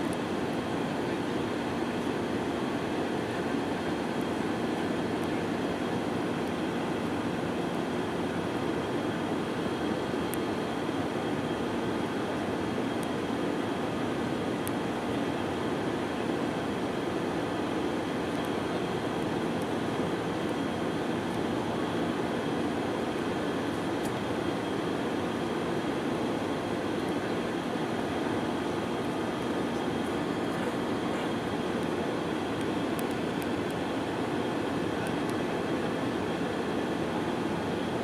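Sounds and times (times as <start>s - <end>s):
faint high whine: 0.0s - 38.0s
airplane cabin rumble: 11.3s - 38.0s.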